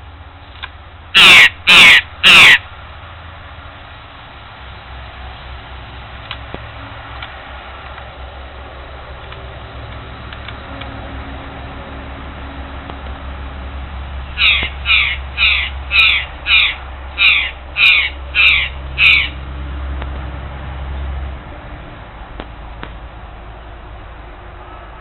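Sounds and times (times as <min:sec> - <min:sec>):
bird calling: 0:01.2 - 0:02.7, 0:14.3 - 0:19.4.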